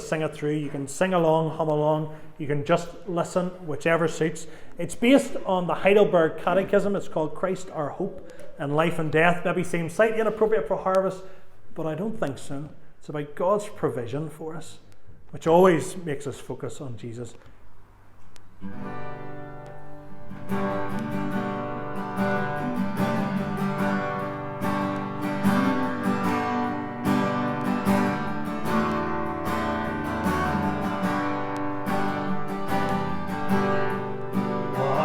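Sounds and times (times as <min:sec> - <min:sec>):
acoustic guitar strumming: 0:18.6 - 0:35.0.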